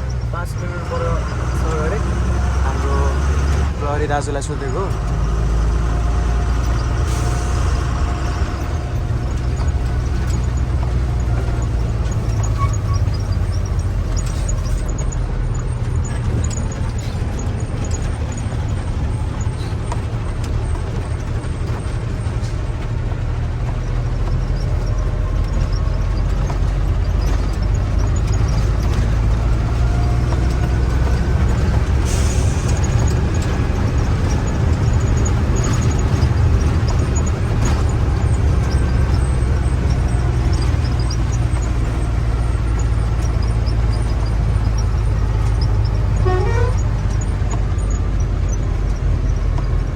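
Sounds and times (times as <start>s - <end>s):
faint rattles: 0.0s - 49.9s
truck engine drone: 0.0s - 49.9s.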